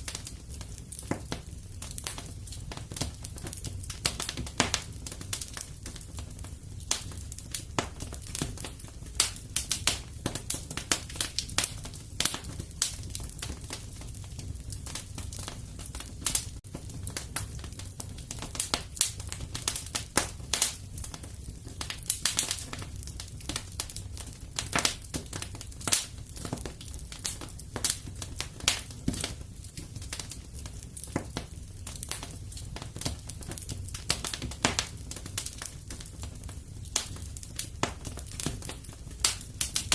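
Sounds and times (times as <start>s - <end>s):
low rumble of burning fire: 0.0s - 39.9s
wood fire crackling and popping: 0.0s - 39.9s.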